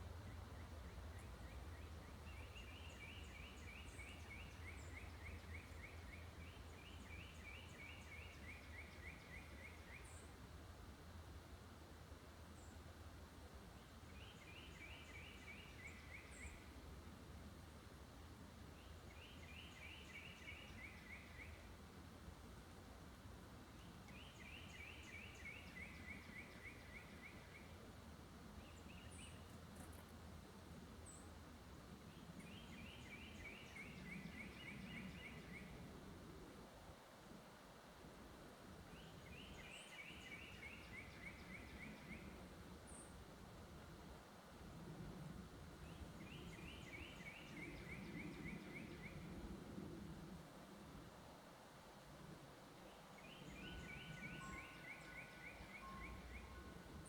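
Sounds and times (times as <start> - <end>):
songbird singing: 0.0 - 10.4, 13.8 - 16.9, 18.5 - 21.9, 23.7 - 30.3, 30.9 - 36.4, 38.8 - 43.3, 44.8 - 50.0, 52.8 - 57.0
songbird singing rapid repeated notes: 52.9 - 57.0.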